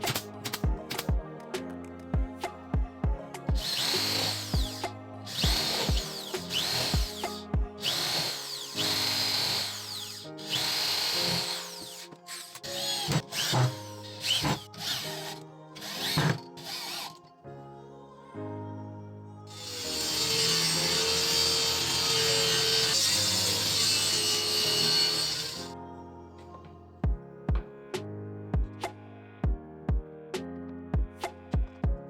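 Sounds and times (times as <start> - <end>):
background music: 0.0 - 32.0
power drill motor whine: 3.6 - 17.2, 19.5 - 25.7.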